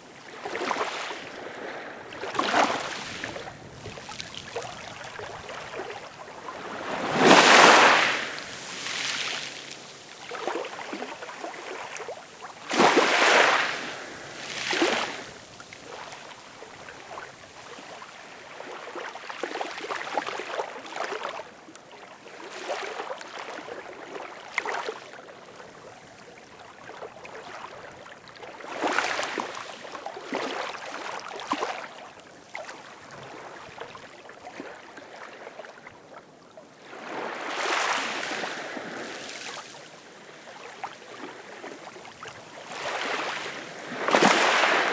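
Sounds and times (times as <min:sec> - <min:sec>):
ocean waves breaking on shore: 0:00.0 - 0:20.0, 0:36.8 - 0:44.9.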